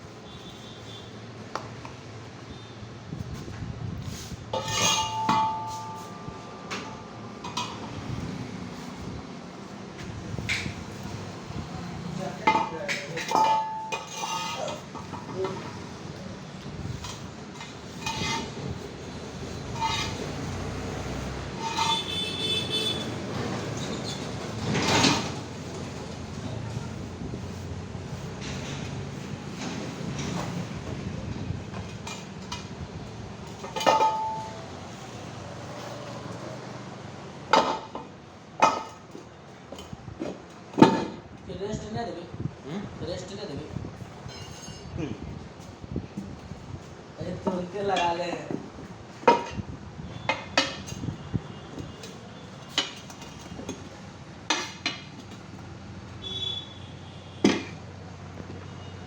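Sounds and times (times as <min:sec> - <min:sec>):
metal tools clanking on metal: 0:04.5 - 0:08.0, 0:12.4 - 0:15.8, 0:16.9 - 0:18.9, 0:19.6 - 0:20.9, 0:21.5 - 0:23.1, 0:23.7 - 0:25.4, 0:33.4 - 0:34.7, 0:37.5 - 0:40.0, 0:44.2 - 0:45.0, 0:49.2 - 0:49.6, 0:50.2 - 0:51.2, 0:51.9 - 0:55.4
high squeak: 0:21.6 - 0:23.0, 0:44.2 - 0:44.9.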